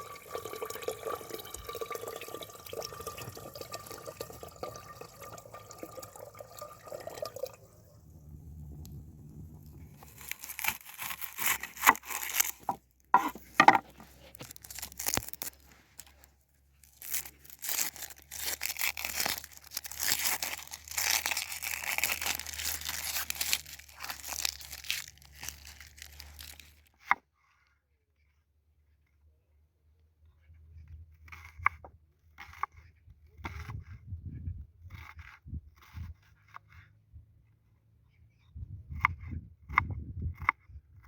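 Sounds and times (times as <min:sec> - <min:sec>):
crinkling tearing rustles: 0:09.6 - 0:26.9.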